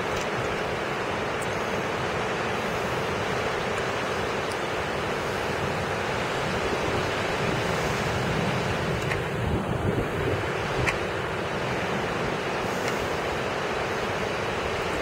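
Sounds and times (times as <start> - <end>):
strong wind rushing: 5.3 - 13.4.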